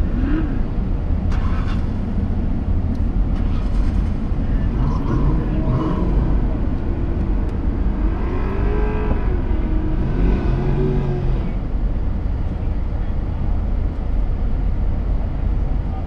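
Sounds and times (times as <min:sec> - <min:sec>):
car engine rumble: 0:00.0 - 0:16.0
engine revving: 0:03.4 - 0:11.7.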